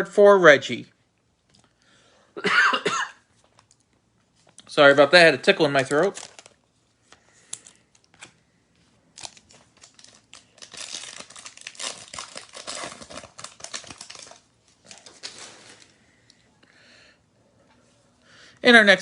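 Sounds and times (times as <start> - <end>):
plastic wrapper crinkling: 5.5 - 8.4, 9.0 - 16.0.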